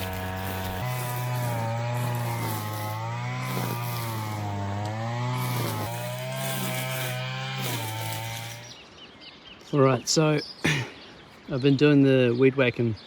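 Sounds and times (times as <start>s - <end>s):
string trimmer engine running: 0.0s - 8.8s.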